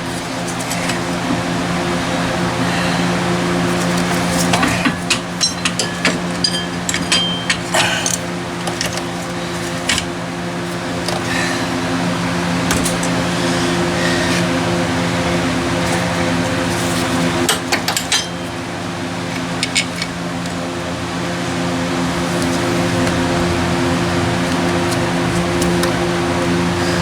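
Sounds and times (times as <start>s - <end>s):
steady hum: 0.0s - 27.0s
metal tools and bolts clinking: 4.0s - 10.1s, 17.4s - 18.6s.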